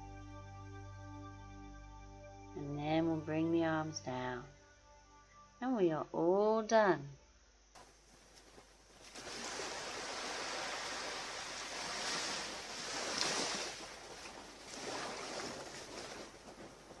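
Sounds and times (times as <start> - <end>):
ocean surf washing onto beach: 9.1 - 17.0.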